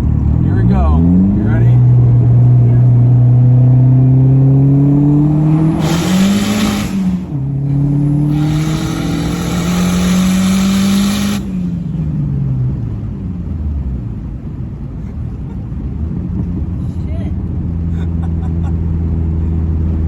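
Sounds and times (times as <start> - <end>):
car engine accelerating: 0.0 - 20.0
turbo rushing hiss: 8.2 - 11.6.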